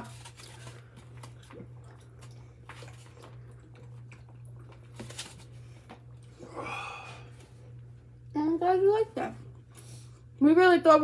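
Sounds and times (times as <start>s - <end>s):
person chewing food: 0.0s - 7.9s
steady low hum: 0.0s - 11.0s.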